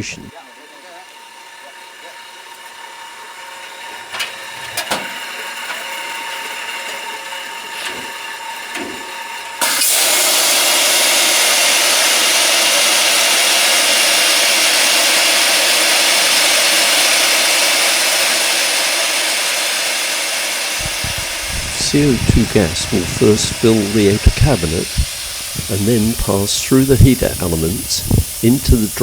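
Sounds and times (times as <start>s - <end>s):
gas discharging hiss: 9.6s - 29.0s
machine hum: 20.7s - 29.0s.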